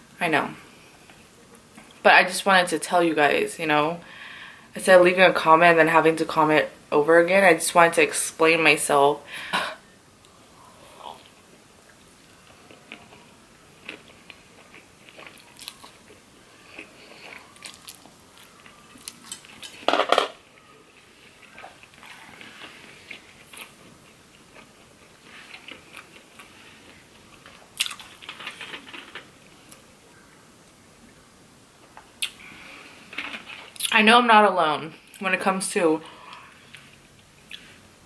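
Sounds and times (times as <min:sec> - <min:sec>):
chewing and biting: 0:12.2 - 0:19.8, 0:21.4 - 0:29.1.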